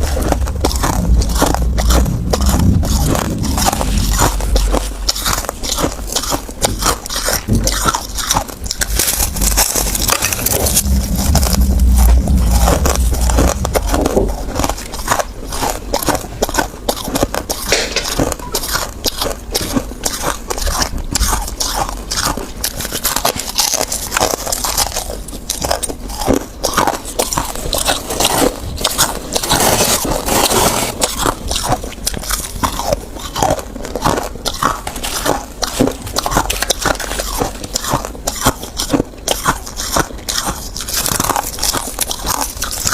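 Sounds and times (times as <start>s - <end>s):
low rumble: 0.0s - 16.7s
crunching of hard ice: 0.0s - 42.9s.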